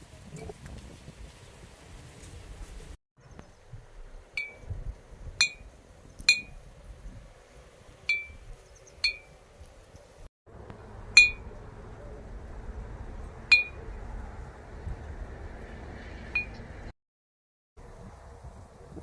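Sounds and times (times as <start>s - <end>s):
metallic noisemaker clinking: 11.2s - 11.5s.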